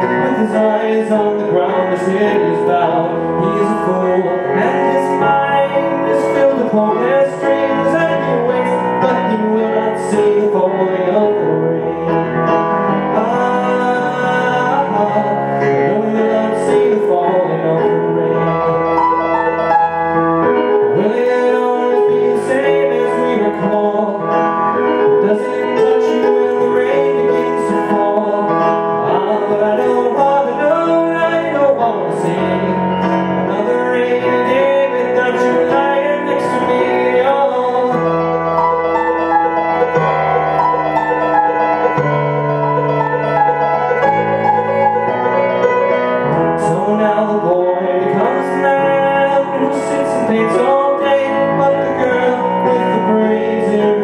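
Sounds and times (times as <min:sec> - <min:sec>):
pop ballad on piano: 0:00.0 - 0:54.0.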